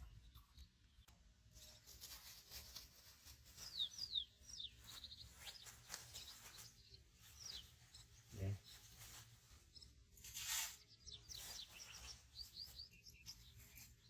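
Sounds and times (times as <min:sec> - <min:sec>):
high bird chirps: 0:02.2 - 0:14.0.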